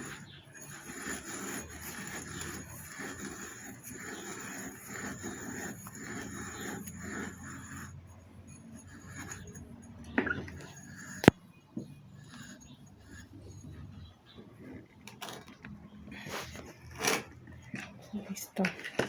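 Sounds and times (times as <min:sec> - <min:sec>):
scraping and handling of pump parts: 0:08.0 - 0:19.0.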